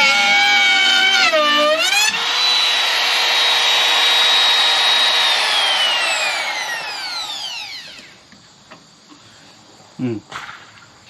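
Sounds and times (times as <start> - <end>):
electric router whine: 0.0 - 8.4.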